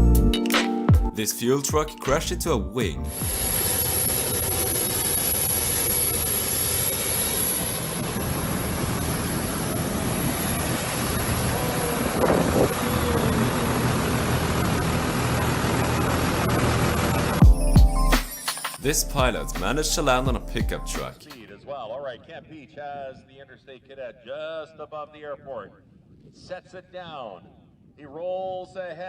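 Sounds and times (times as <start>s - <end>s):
jet engines roaring: 3.1s - 17.4s.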